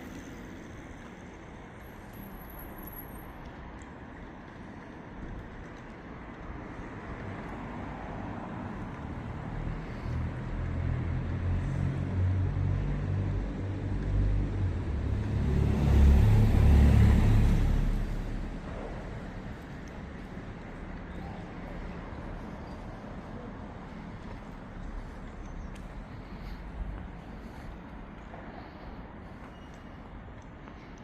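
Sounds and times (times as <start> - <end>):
vehicle passing by: 7.6 - 27.8.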